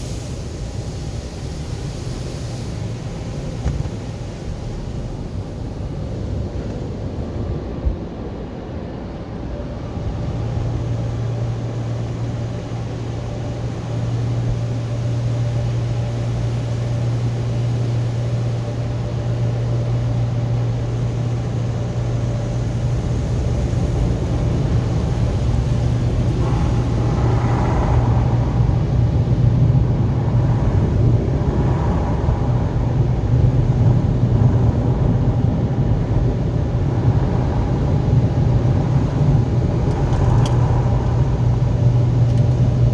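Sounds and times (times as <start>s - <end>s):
automatic car wash rumble: 0.0s - 42.9s.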